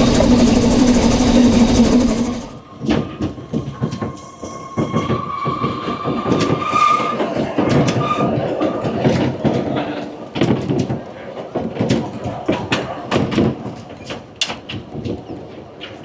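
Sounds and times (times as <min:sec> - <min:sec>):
train wheels clacking on track: 0:00.0 - 0:02.6
wheel squeal: 0:00.0 - 0:02.6.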